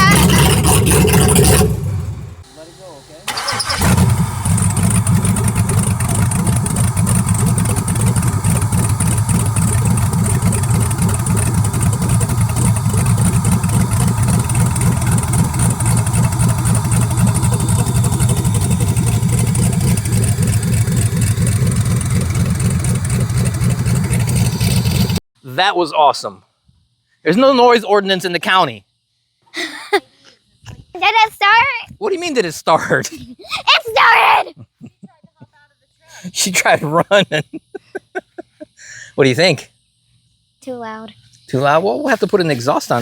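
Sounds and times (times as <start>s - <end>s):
loud engine running without exhaust: 0.0s - 25.2s.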